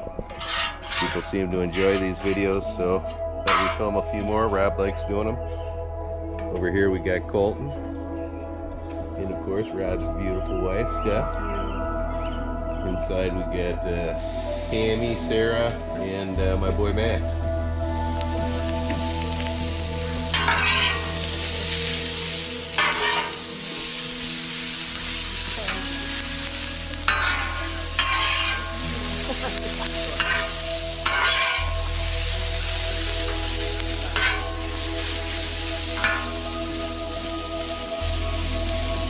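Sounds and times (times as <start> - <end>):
metal spatulas scraping: 0.3 - 2.5, 20.3 - 21.2, 22.8 - 23.5, 27.1 - 28.8, 30.2 - 31.7, 34.2 - 34.6
peppers sizzling on griddle: 18.2 - 39.0.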